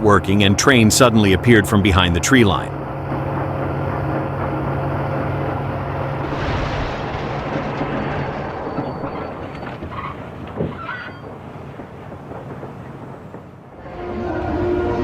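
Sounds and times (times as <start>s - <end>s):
train rail noise rushing: 0.0s - 15.0s.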